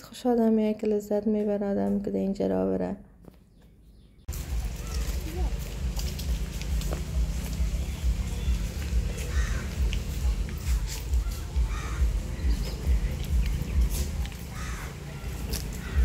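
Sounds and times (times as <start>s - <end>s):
low rumble on microphone: 4.3s - 16.0s.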